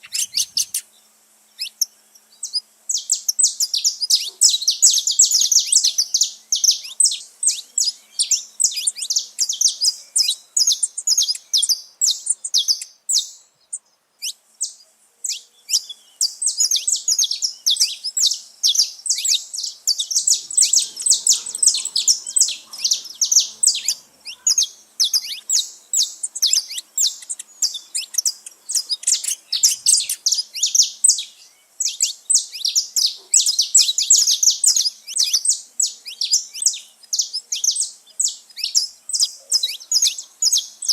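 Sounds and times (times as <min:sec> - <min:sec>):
finches chirping: 0:00.0 - 0:40.9.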